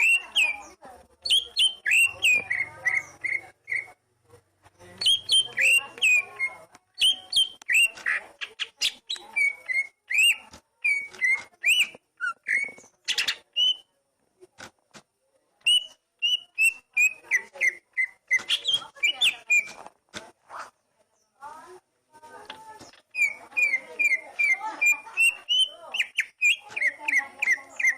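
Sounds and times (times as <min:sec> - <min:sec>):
bird singing whistled notes: 0:00.0 - 0:03.9, 0:05.0 - 0:13.9, 0:15.6 - 0:19.8, 0:22.9 - 0:27.9.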